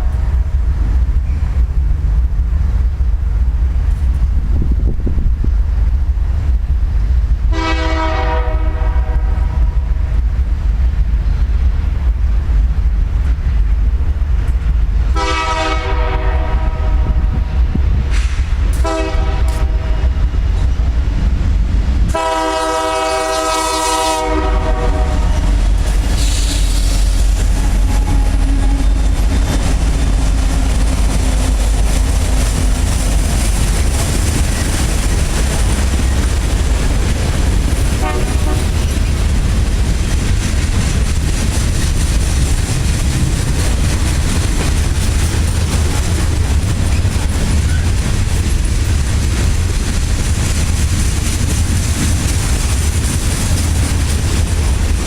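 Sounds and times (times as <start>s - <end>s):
low rumble of train: 0.0s - 55.0s
locomotive air horn blasts: 7.5s - 9.8s, 15.1s - 17.5s, 18.8s - 20.2s, 22.1s - 27.0s, 27.8s - 29.0s, 37.9s - 38.8s.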